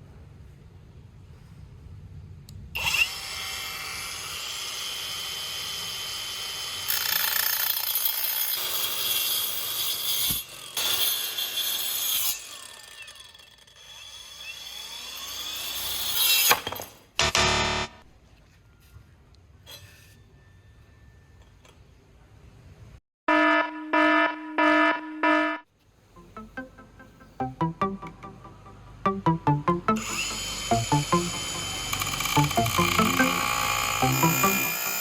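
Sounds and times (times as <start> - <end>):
angle grinder cutting material: 30.0 - 35.0
angle grinder whining: 30.0 - 35.0.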